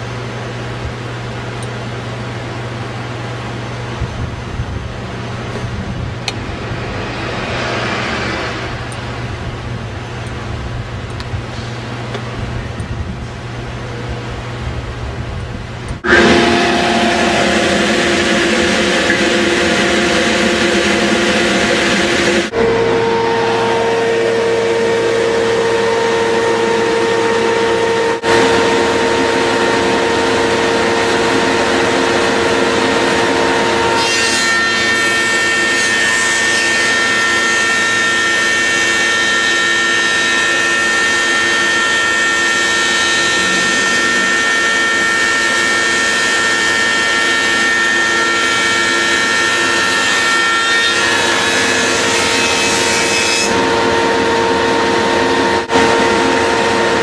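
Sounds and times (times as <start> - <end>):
rip saw running: 16.0 - 54.6
saw cutting wood: 16.0 - 57.0.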